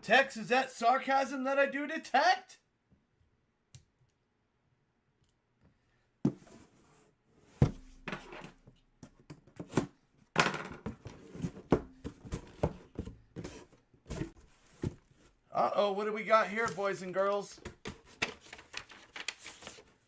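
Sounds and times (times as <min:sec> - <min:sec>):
packaging rustling and tearing: 0:18.1 - 0:20.0.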